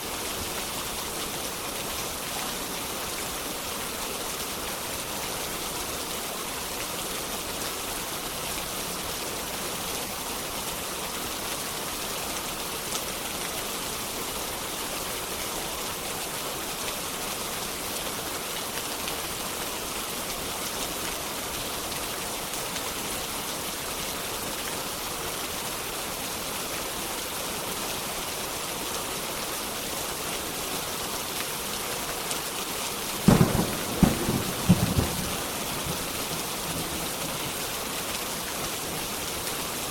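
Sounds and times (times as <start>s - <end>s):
steady rain: 0.0s - 39.9s
thunder clap: 33.3s - 36.1s.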